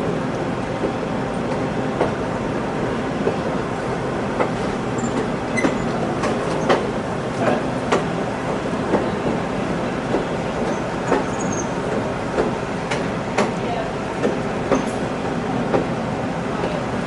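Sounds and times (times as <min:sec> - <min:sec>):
train rumbling on rails: 0:00.0 - 0:17.0
wheels clacking on rail joints: 0:04.4 - 0:08.2, 0:10.0 - 0:15.0.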